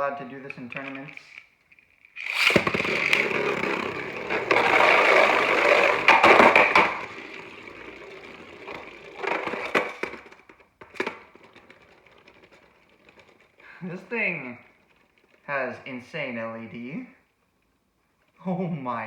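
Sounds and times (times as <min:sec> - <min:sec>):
spinning top clacks: 0:00.0 - 0:15.8
spinning top scraping with whine: 0:00.5 - 0:10.1.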